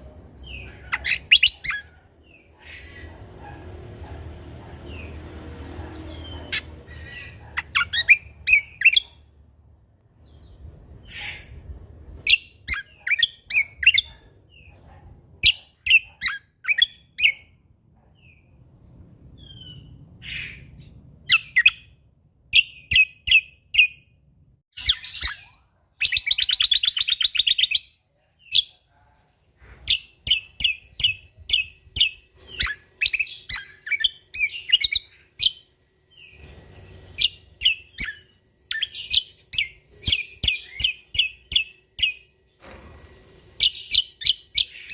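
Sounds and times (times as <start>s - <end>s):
bird chirping song: 0.0s - 3.6s, 4.6s - 9.3s, 10.2s - 14.8s, 15.4s - 42.6s, 43.6s - 44.9s
bird buzzy trill: 29.9s - 44.9s.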